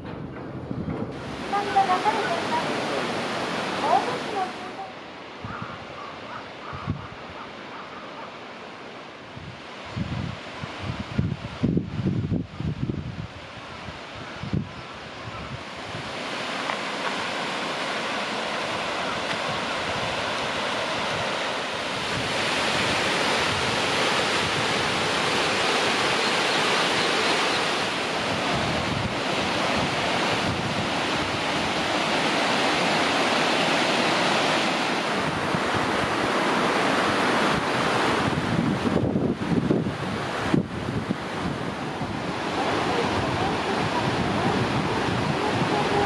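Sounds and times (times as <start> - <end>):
waterfall rushing: 1.1 - 5.5, 14.9 - 46.0.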